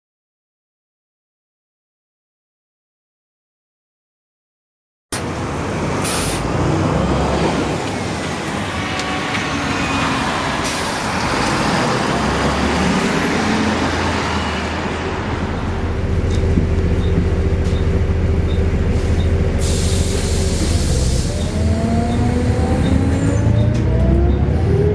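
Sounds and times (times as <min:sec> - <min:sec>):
bus diesel engine rumble: 0:05.2 - 0:24.9
steady engine whine: 0:05.2 - 0:24.9.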